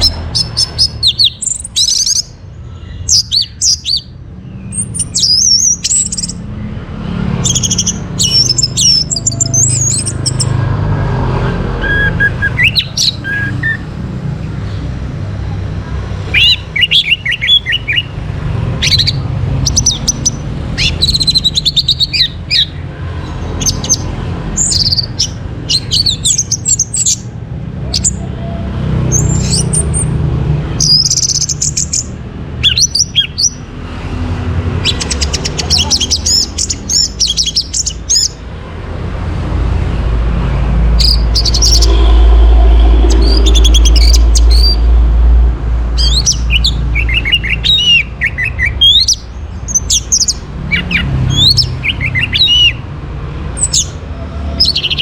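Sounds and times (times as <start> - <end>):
thrush singing: 7.4 - 14.1, 38.8 - 48.9
low rumble: 38.7 - 46.9.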